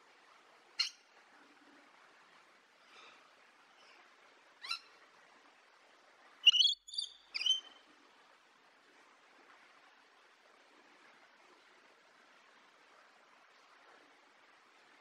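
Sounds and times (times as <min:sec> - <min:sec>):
bird calling: 0:06.4 - 0:07.7.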